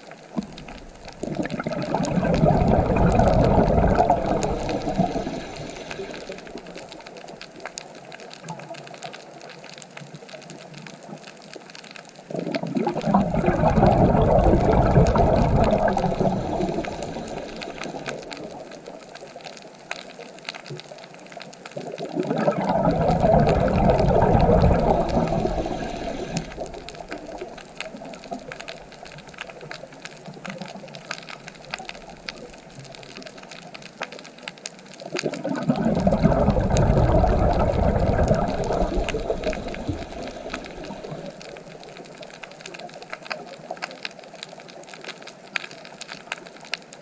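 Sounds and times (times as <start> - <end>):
light wash of water: 0.3 - 7.9, 12.3 - 19.3, 21.8 - 33.4, 35.0 - 42.6
ocean waves breaking: 1.2 - 7.1, 13.0 - 18.8, 22.2 - 27.6.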